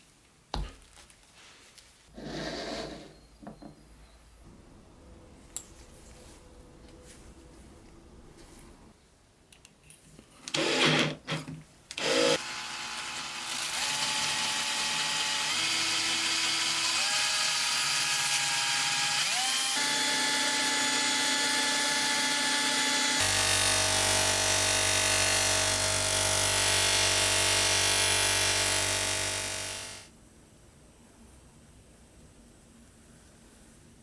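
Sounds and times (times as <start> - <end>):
small power tool motor humming: 12.0 - 30.1.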